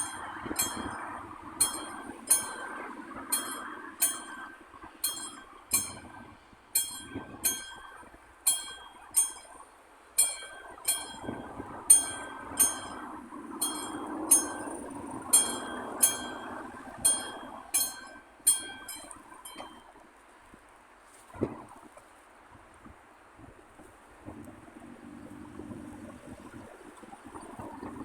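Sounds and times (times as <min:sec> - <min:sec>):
level crossing warning bell ringing: 0:00.0 - 0:19.9
steady background noise: 0:00.0 - 0:28.0.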